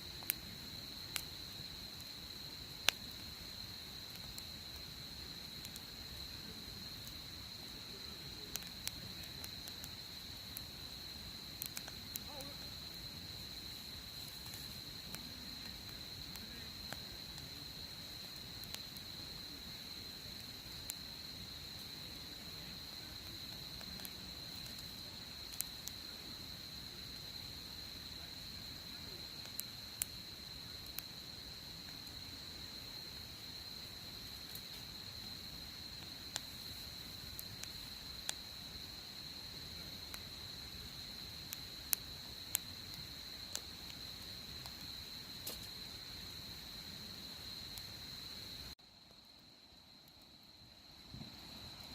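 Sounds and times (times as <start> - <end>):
campfire crackling: 0.0 - 51.9
insect trill: 0.0 - 51.9
sharp pops from fire: 0.1 - 6.1, 7.0 - 13.1, 13.7 - 22.0, 22.9 - 26.1, 34.2 - 35.1, 35.9 - 38.6, 40.0 - 46.0.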